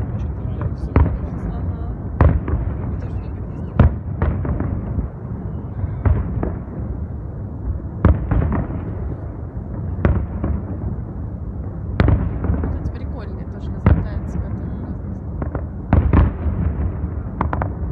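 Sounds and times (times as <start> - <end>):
fireworks bangs: 0.0 - 17.9
fireworks rumble and crackle: 0.0 - 17.9.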